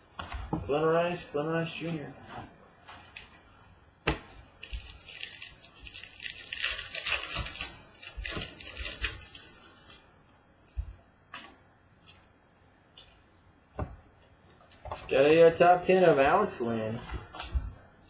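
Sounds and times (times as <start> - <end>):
card packaging crinkling: 4.5 - 10.0.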